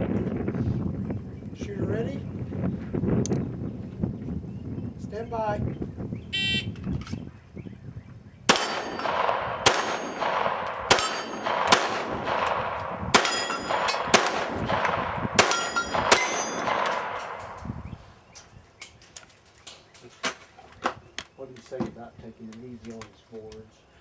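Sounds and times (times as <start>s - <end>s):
handgun shots: 8.5s - 17.6s
steel plate ringing: 10.9s - 11.7s, 13.2s - 14.1s, 15.4s - 16.9s.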